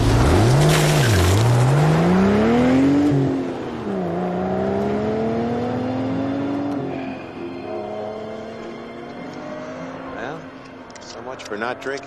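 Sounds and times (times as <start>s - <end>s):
sports car engine accelerating: 0.0s - 10.5s.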